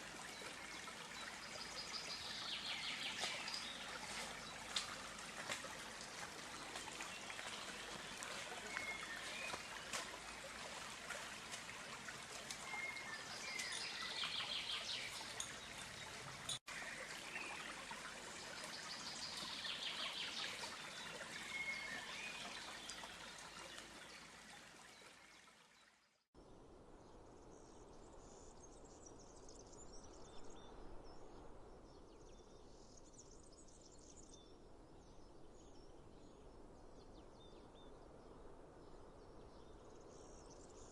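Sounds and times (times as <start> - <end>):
running water: 0.0 - 26.0.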